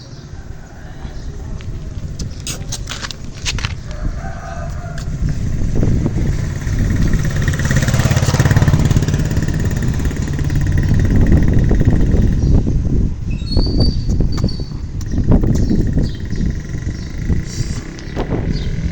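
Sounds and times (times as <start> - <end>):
motor engine humming: 4.9 - 12.9.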